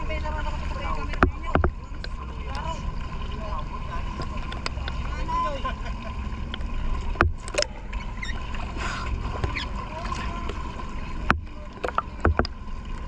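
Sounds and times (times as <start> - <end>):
wind and water rumble: 0.0 - 13.0
sharp knocks: 1.2 - 1.8, 7.2 - 7.6, 11.3 - 12.6.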